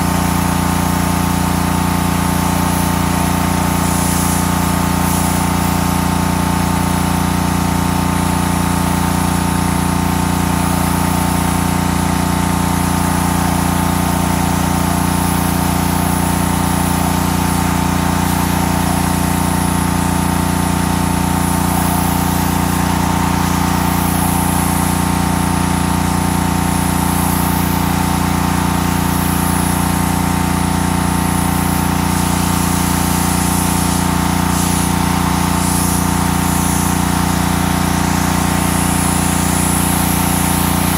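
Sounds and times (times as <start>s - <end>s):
pressure washer engine running: 0.0s - 40.9s.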